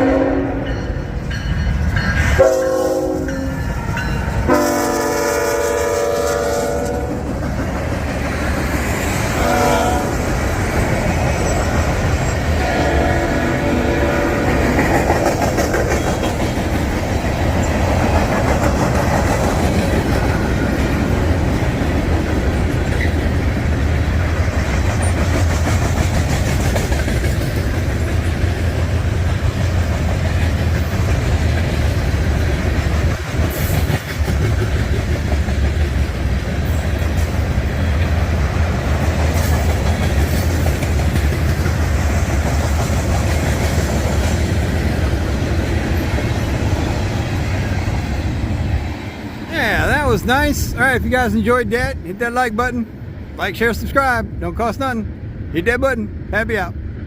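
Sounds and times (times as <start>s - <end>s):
freight train rumbling past: 0.0s - 57.0s
wheels clacking over rail joints: 14.0s - 49.2s.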